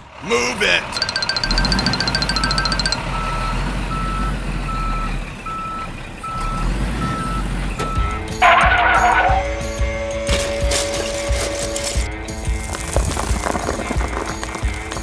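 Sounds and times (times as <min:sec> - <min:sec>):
low engine rumble: 0:00.0 - 0:15.0
reversing alarm beeping: 0:00.8 - 0:10.3.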